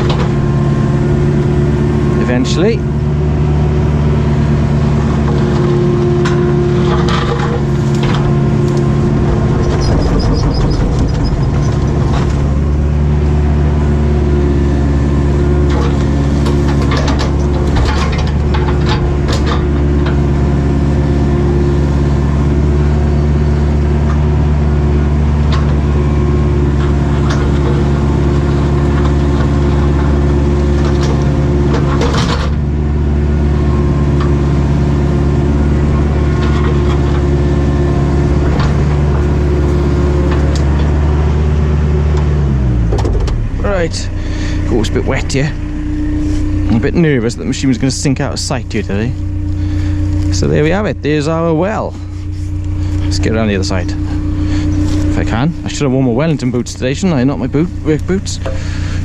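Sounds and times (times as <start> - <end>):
excavator diesel engine running: 0.0 - 59.0
sharp knocks and clatters: 5.2 - 12.9, 15.6 - 20.3, 26.8 - 32.6.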